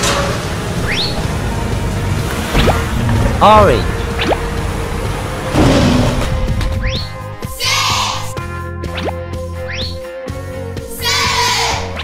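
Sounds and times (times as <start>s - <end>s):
children's background music: 3.4s - 12.0s.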